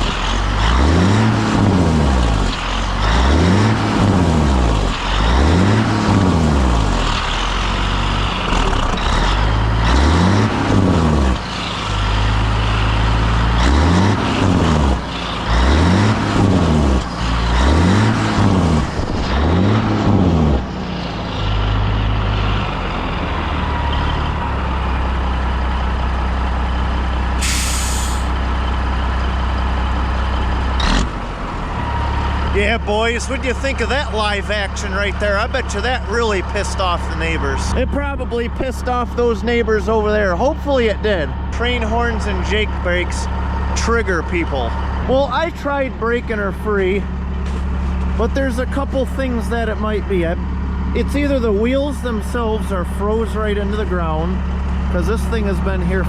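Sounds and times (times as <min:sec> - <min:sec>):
diesel engine revving: 0:00.0 - 0:56.0
air hiss: 0:27.4 - 0:28.3.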